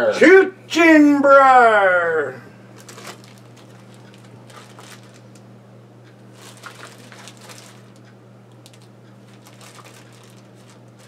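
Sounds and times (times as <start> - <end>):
steady low hum: 0.0 - 11.0
soft rustling: 2.8 - 5.4, 6.3 - 8.0, 8.6 - 11.0.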